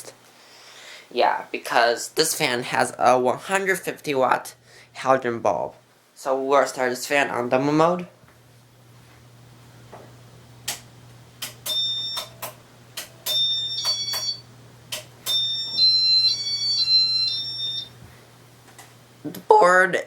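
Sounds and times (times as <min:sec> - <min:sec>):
steady low hum: 0:00.0 - 0:20.0
sharp clicks: 0:10.6 - 0:15.4.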